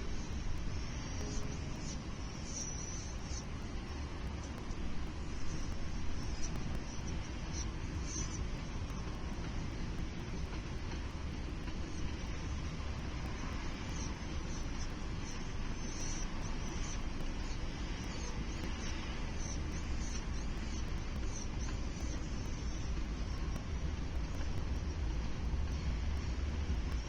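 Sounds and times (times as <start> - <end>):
faint high chirps: 0.0 - 3.6.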